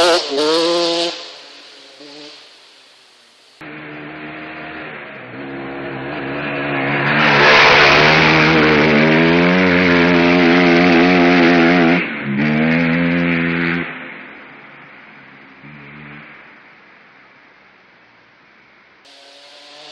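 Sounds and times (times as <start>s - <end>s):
motocross bike engine revving: 0.0s - 2.4s, 3.6s - 14.2s, 15.5s - 16.5s, 19.1s - 19.9s.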